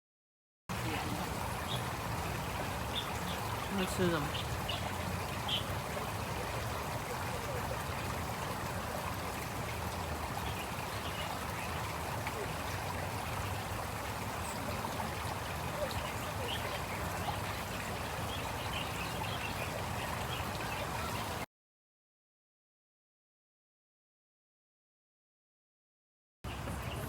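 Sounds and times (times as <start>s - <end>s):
running water trickling: 0.7s - 21.5s.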